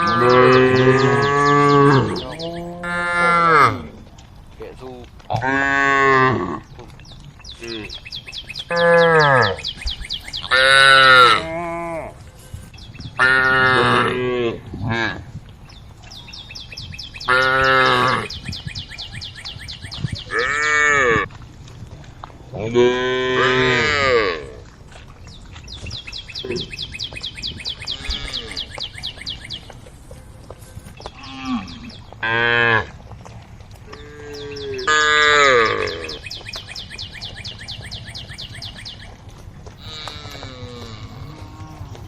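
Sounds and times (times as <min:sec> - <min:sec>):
cows mooing: 0:00.0 - 0:06.8, 0:08.6 - 0:12.6, 0:13.2 - 0:15.3, 0:17.2 - 0:18.5, 0:20.2 - 0:21.3, 0:22.5 - 0:24.7, 0:27.8 - 0:29.1, 0:30.8 - 0:33.1, 0:33.8 - 0:36.5, 0:39.7 - 0:42.0.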